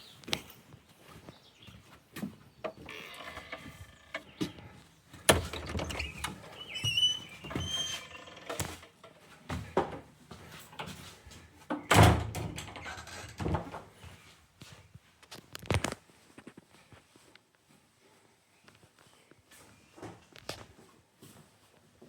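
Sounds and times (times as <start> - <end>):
short high squeaks: 2.8 - 4.2, 5.6 - 8.8.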